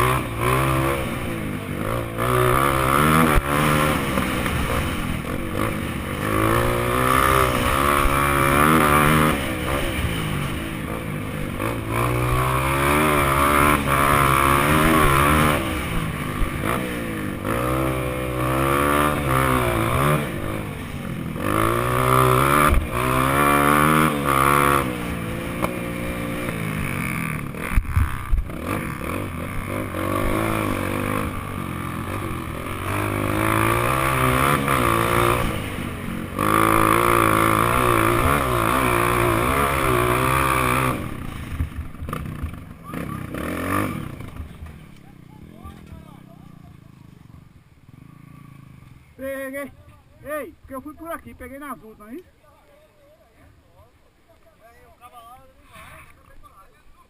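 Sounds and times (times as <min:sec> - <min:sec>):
dirt bike engine revving: 0:00.0 - 0:49.8.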